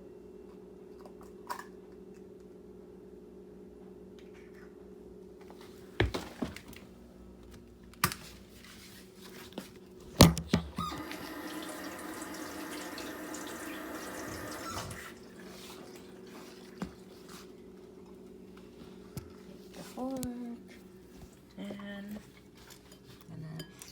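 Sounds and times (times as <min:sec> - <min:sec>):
tap water running into sink: 0:10.8 - 0:17.0.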